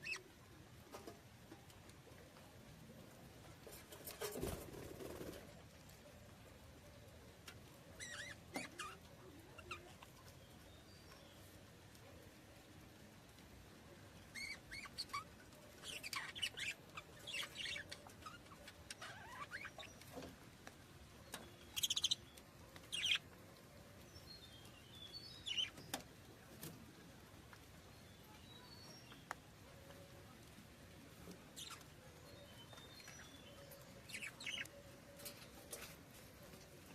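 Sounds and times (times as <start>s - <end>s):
budgerigars chirping: 21.7s - 22.2s, 23.0s - 23.2s, 34.1s - 34.7s.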